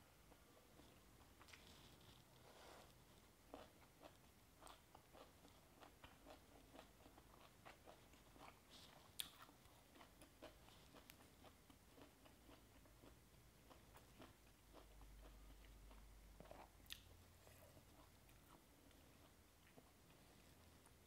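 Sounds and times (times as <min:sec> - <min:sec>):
crunchy chewing: 0:00.8 - 0:21.0.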